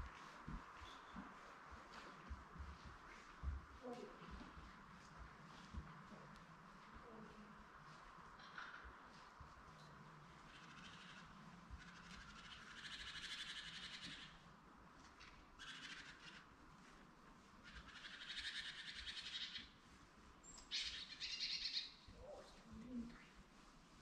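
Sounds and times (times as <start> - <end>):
small birds twittering: 0.0 - 1.6, 9.7 - 14.4, 15.2 - 16.6, 17.4 - 19.8, 20.4 - 23.4
low steady hiss: 0.0 - 24.0.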